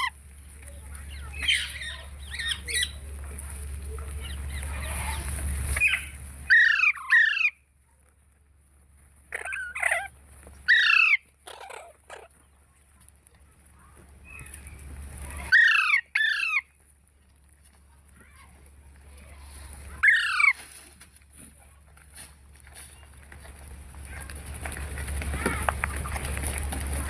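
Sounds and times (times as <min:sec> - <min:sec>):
parrot squawking: 0:01.3 - 0:03.0, 0:05.8 - 0:07.6, 0:09.3 - 0:10.1, 0:10.7 - 0:12.3, 0:15.5 - 0:16.7, 0:20.0 - 0:20.6.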